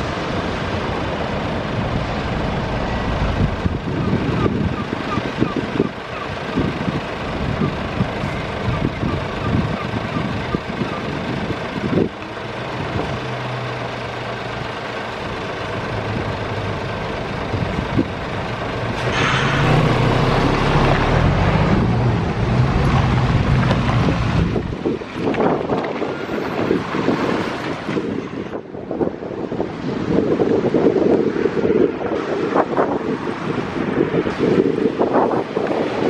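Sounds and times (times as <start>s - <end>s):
heavy truck engine droning: 0.0s - 36.0s
loud air hiss: 19.0s - 20.1s.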